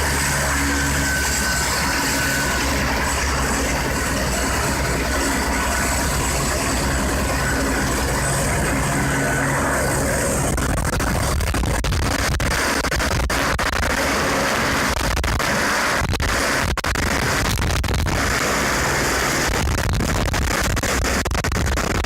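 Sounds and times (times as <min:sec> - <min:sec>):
rotor blades beating: 0:00.0 - 0:11.8
helicopter turbine whine: 0:00.0 - 0:15.0, 0:18.2 - 0:19.5.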